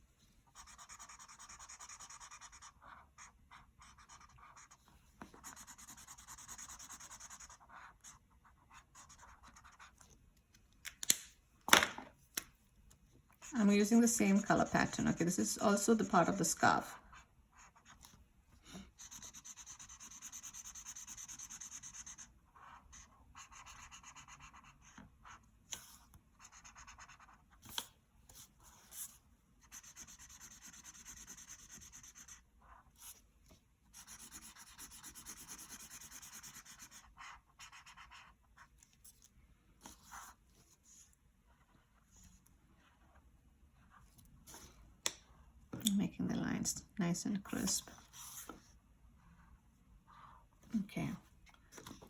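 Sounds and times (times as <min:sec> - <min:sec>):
colouring tool rubbing on paper: 0:18.9 - 0:24.8, 0:29.6 - 0:32.5, 0:33.9 - 0:38.3.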